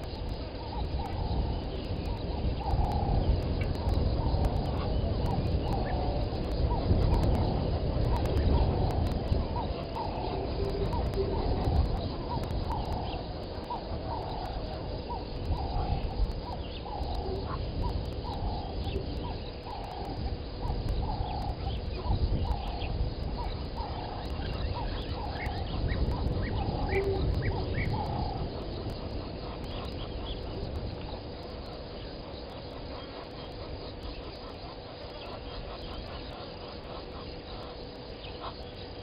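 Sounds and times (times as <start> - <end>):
steady low rumble: 0.0 - 39.0
bird low hooting: 0.6 - 31.6.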